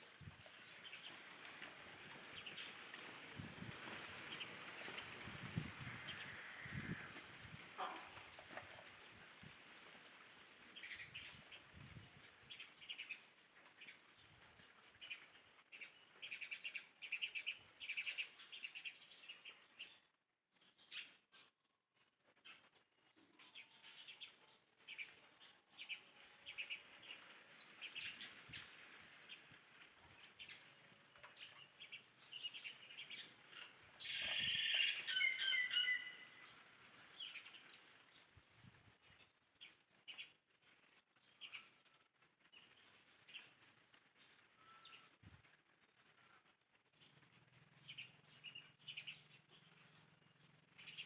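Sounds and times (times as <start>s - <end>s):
bird chirps: 31.4s - 36.6s
high piercing bird calls: 33.0s - 36.6s.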